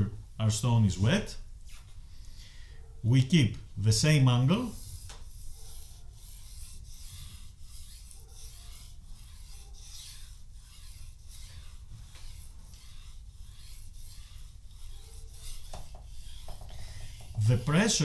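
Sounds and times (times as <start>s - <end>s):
knife scraping on whetstone: 4.6s - 18.0s.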